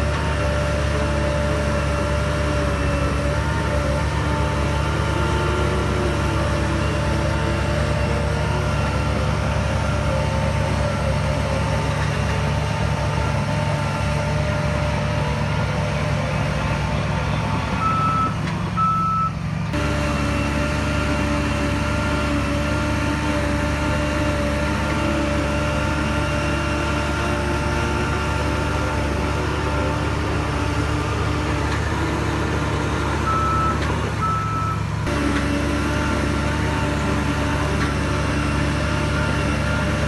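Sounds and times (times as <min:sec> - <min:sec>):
heavy diesel machinery engine: 0:00.0 - 0:40.0
reverse alarm beeps: 0:17.8 - 0:19.3.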